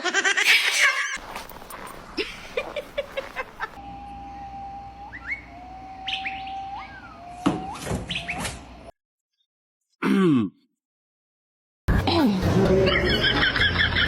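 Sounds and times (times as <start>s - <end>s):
bird whistling long notes: 5.0s - 8.4s
bird chirps: 5.1s - 7.4s, 8.0s - 8.4s.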